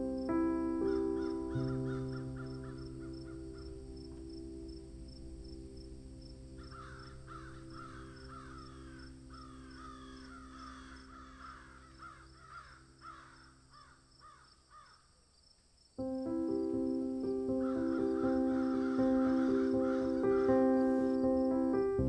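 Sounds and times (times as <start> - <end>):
bird calling: 6.6 - 15.0, 17.6 - 21.2.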